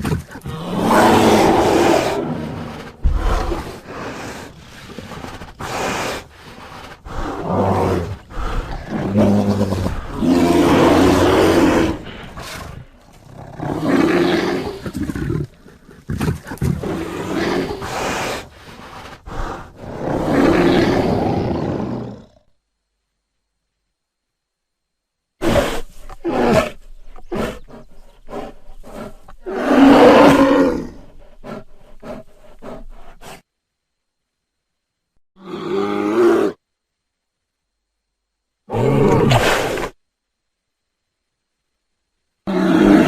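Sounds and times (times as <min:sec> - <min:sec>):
bear roaring and growling: 0:00.0 - 0:22.5, 0:25.4 - 0:33.0, 0:35.4 - 0:36.6, 0:38.7 - 0:40.0, 0:42.4 - 0:43.0.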